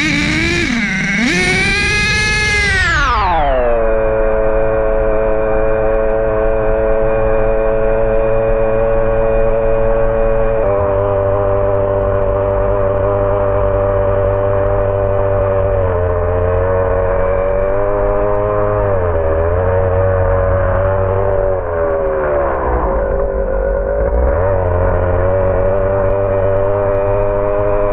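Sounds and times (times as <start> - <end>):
small engine idling: 0.0 - 3.8.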